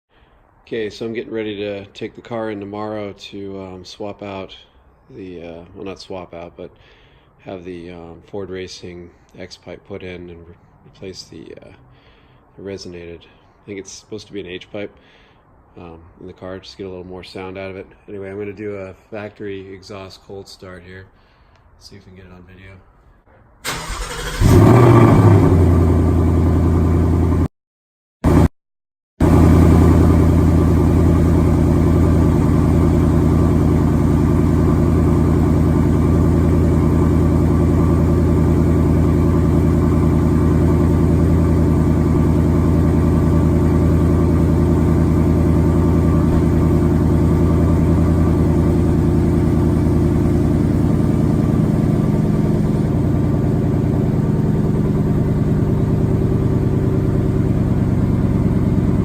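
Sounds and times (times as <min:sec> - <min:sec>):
car engine cold start and idle: 0:23.6 - 0:27.5, 0:29.2 - 0:59.0.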